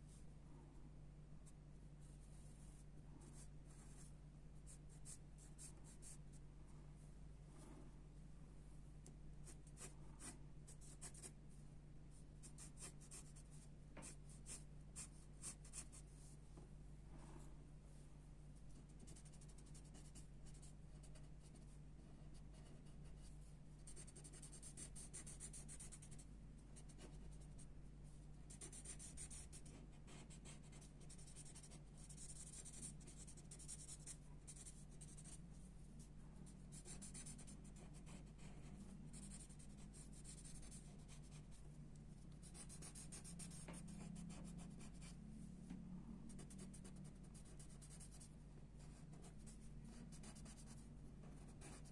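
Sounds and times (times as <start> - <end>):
low steady hum: 0.0 - 51.9
pencil sketching on paper: 9.4 - 11.3, 12.5 - 16.2, 19.0 - 26.2, 26.8 - 27.6, 28.5 - 35.4, 36.5 - 41.4, 42.4 - 45.2, 46.3 - 51.9.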